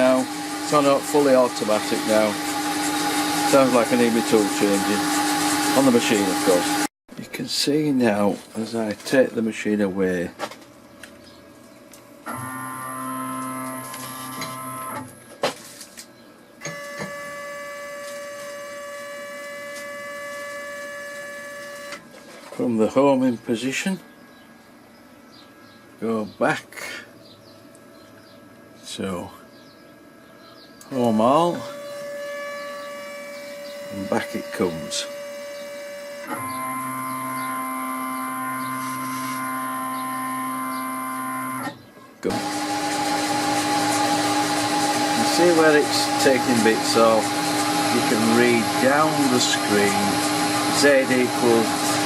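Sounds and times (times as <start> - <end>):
lathe drive motors whining: 0.0 - 6.9, 12.2 - 15.1, 16.6 - 23.9, 30.8 - 52.0.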